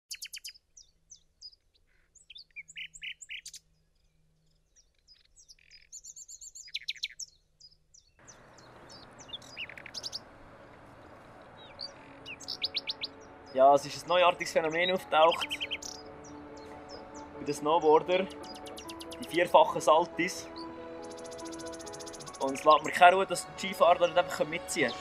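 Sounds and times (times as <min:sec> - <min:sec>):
songbirds chirping and twittering: 0:00.0 - 0:25.0
forest ambience hiss: 0:08.2 - 0:13.0.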